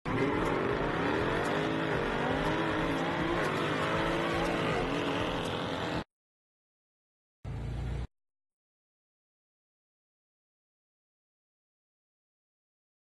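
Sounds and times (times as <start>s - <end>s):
car engine accelerating: 0.0s - 6.1s.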